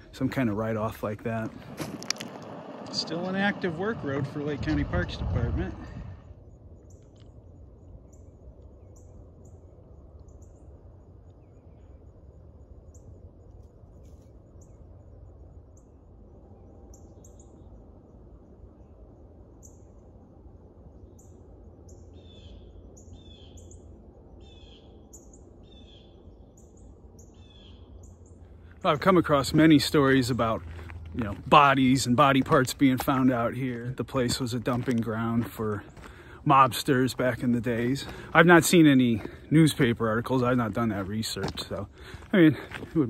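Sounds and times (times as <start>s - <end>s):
low steady rumble: 0.0s - 43.0s
loud low bird calls: 21.0s - 43.0s.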